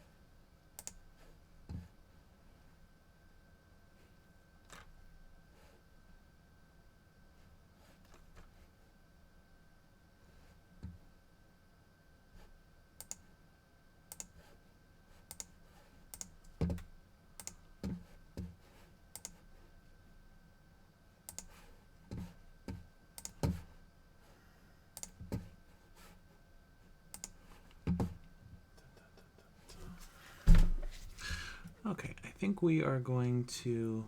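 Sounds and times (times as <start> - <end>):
keyboard and mouse clicks: 0.8 - 1.0, 13.0 - 13.3, 14.1 - 14.4, 15.3 - 17.6, 19.1 - 19.4, 21.3 - 21.6, 23.2 - 23.6, 25.0 - 25.4, 27.1 - 27.4.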